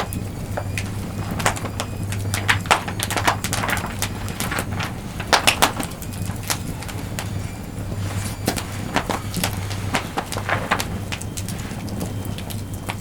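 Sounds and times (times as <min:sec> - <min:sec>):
campfire crackling and popping: 0:00.0 - 0:13.0
steady low hum: 0:00.0 - 0:13.0.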